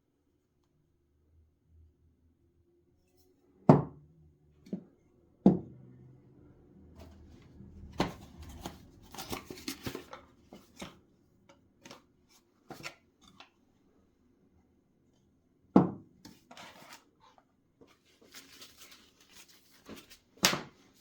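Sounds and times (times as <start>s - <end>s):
sharp knocks on work surface: 15.8s - 16.0s.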